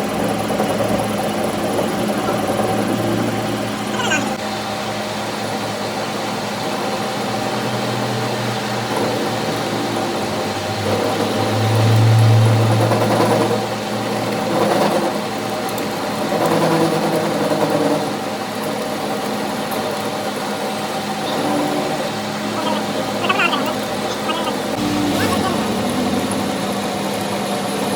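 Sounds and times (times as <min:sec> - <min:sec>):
machine humming: 0:21.1 - 0:27.8.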